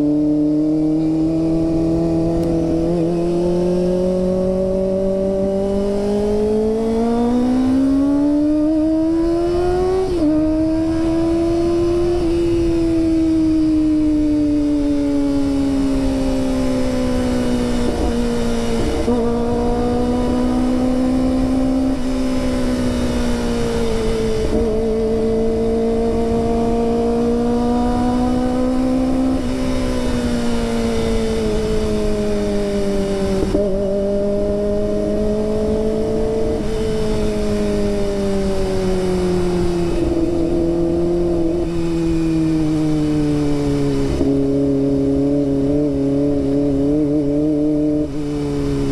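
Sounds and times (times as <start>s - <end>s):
motorcycle engine at speed: 0.0s - 48.9s.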